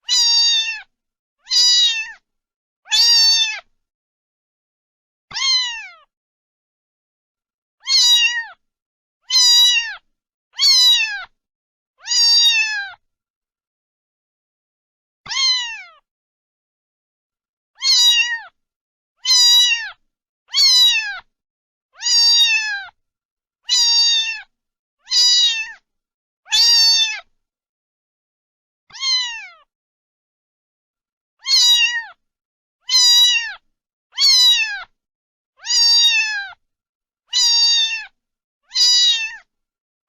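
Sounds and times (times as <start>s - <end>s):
cat meowing: 0.0s - 2.2s, 2.9s - 3.7s, 5.3s - 6.1s, 7.8s - 8.6s, 9.2s - 11.4s, 12.0s - 13.0s, 15.3s - 16.0s, 17.8s - 18.6s, 19.2s - 21.3s, 22.0s - 23.0s, 23.7s - 25.8s, 26.5s - 27.3s, 28.9s - 29.7s, 31.4s - 32.2s, 32.9s - 35.0s, 35.6s - 36.6s, 37.3s - 39.5s.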